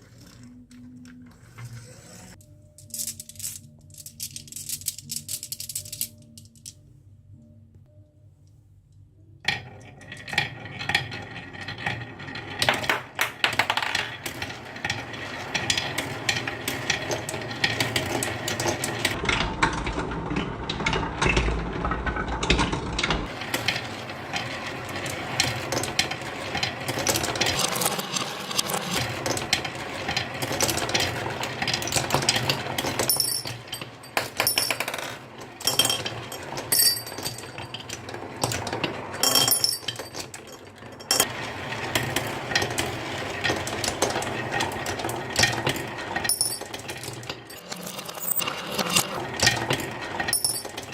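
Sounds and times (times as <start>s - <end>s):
marbles clattering down wooden run: 22.7s - 40.4s, 41.1s - 50.9s.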